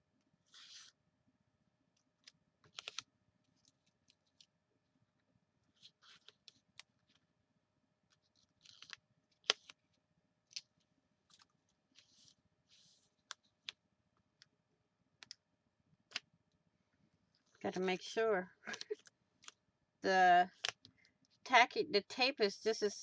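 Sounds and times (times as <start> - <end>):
paper rustling: 0.4 - 1.0, 2.2 - 3.0, 5.7 - 7.2, 8.1 - 9.9, 10.5 - 13.8, 17.4 - 19.6.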